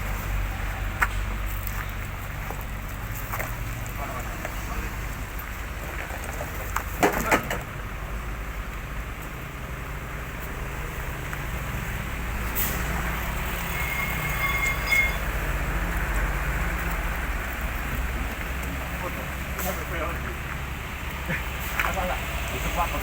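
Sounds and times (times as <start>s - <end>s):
thin high squeal: 12.6s - 15.4s.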